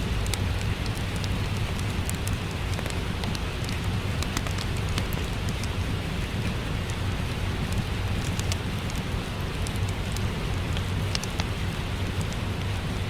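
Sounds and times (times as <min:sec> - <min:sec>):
low rumble: 0:00.0 - 0:03.4
wood fire crackling and popping: 0:00.0 - 0:12.9
steady rain hissing: 0:00.0 - 0:13.0.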